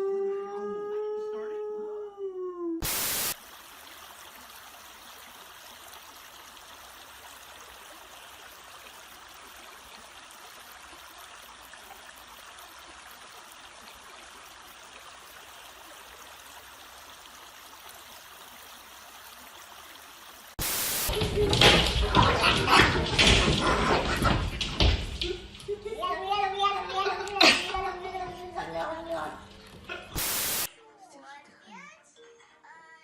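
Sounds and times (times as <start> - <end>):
howl: 0.0 - 2.8
running water rushing: 2.8 - 30.7.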